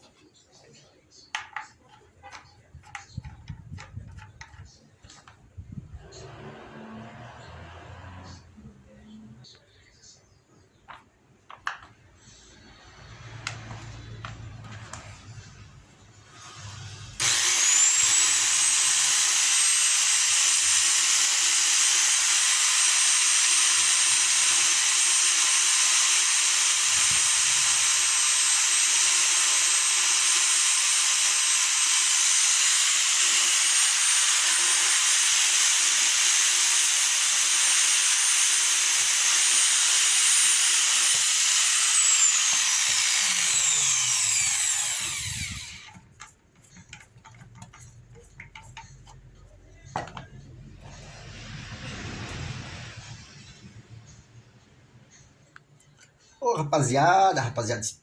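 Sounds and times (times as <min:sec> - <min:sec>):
electric power tool motor whine: 0:06.0 - 0:08.6, 0:12.5 - 0:15.6, 0:16.2 - 0:46.3, 0:50.8 - 0:54.6.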